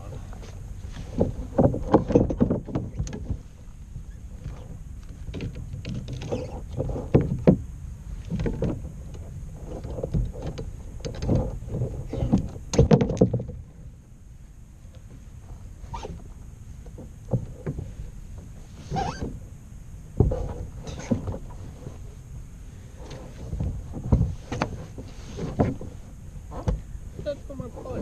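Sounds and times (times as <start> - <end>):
knocks and scrapes on kayak hull: 0.1 - 13.9, 15.0 - 19.5, 20.1 - 28.0.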